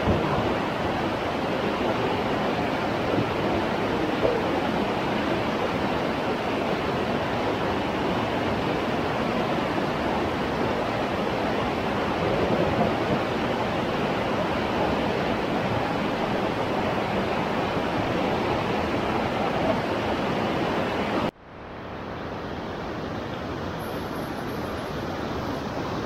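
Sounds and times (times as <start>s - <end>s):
river water rushing through rapids: 0.0s - 26.0s.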